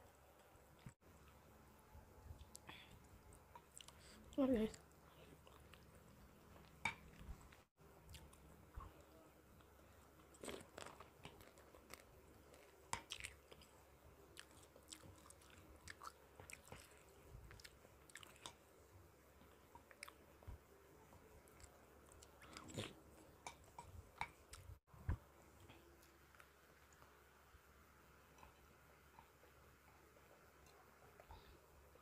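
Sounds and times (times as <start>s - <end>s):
chewing and mouth sounds: 2.4s - 18.7s, 21.4s - 24.8s.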